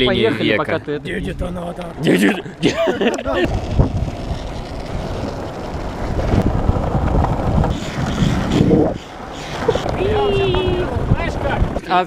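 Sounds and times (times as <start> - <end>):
longboard wheels rolling on asphalt: 3.0 - 12.0
wind buffeting microphone: 3.2 - 12.0.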